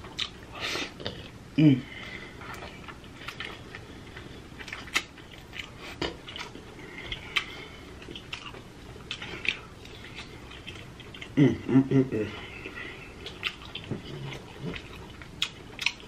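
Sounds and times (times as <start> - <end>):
chewing seafood: 2.0 - 11.5, 12.2 - 16.0
wet lip and teeth smacks: 4.6 - 6.6.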